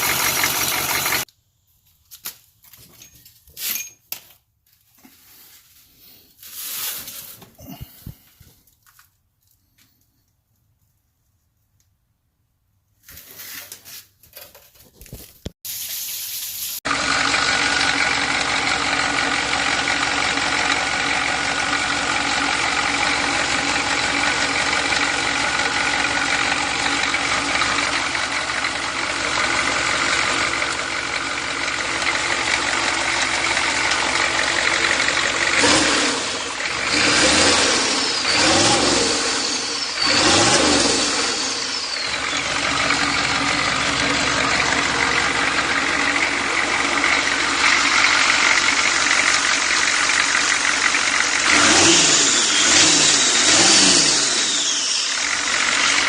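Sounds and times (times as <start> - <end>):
diesel engine running: 0.0 - 1.3, 16.9 - 56.0.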